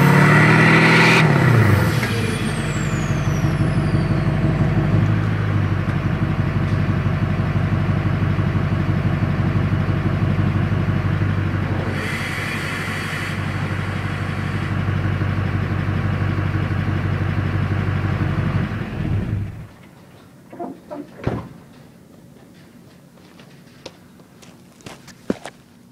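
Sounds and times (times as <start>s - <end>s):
diesel engine idling: 0.0s - 19.8s
hissing rush: 11.7s - 15.2s.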